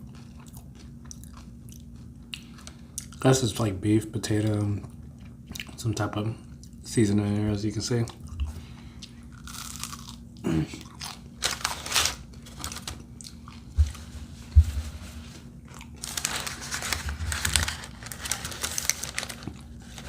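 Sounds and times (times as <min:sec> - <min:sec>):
crunchy food chewing: 0:00.0 - 0:03.3, 0:08.1 - 0:14.0, 0:15.6 - 0:20.0.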